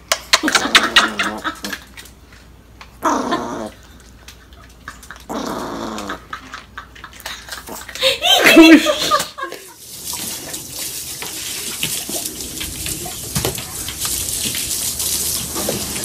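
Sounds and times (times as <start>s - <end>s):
small dog growling: 3.0s - 4.0s, 5.1s - 6.5s.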